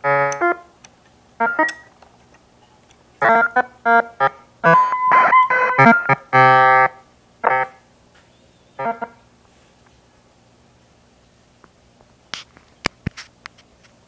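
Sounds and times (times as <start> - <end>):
glitchy electronic keyboard tones: 0.0 - 0.6, 1.4 - 1.9, 3.2 - 7.8, 8.8 - 9.2.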